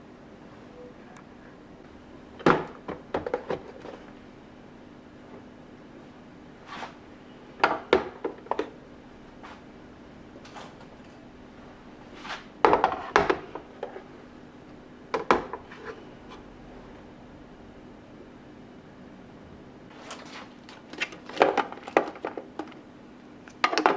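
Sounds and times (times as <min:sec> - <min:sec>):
faint steady hum: 0:00.0 - 0:23.9
household items knocking and clattering: 0:02.4 - 0:04.0, 0:20.8 - 0:22.8, 0:23.6 - 0:23.9.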